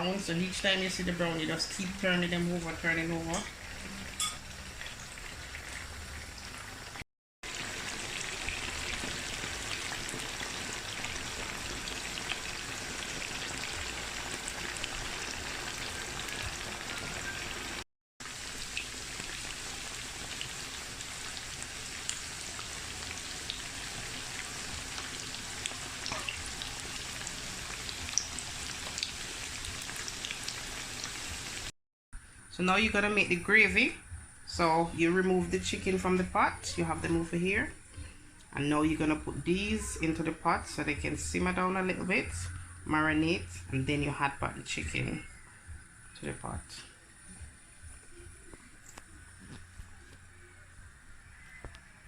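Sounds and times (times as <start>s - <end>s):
chicken frying in oil: 0.0s - 31.7s.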